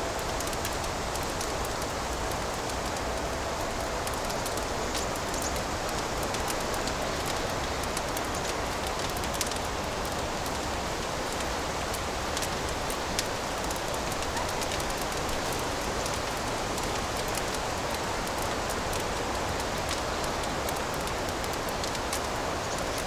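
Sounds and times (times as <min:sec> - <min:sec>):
fireplace fire crackling: 0:00.0 - 0:23.0.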